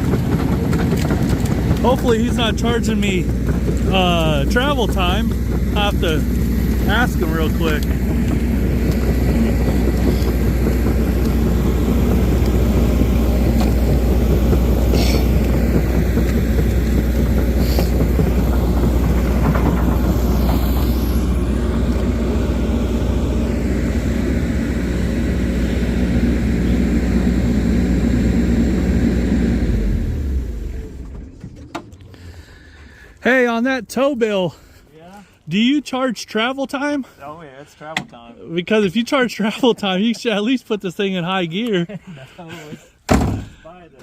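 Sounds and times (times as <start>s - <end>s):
heavy vehicle engine rumbling: 0.0s - 35.9s, 36.7s - 44.0s.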